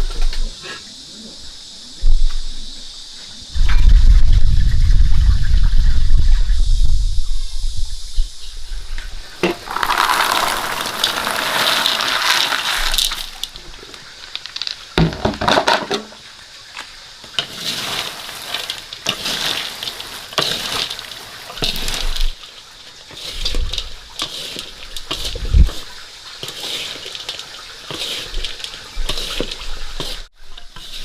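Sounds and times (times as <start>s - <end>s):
water pouring and splashing: 9.2s - 31.0s.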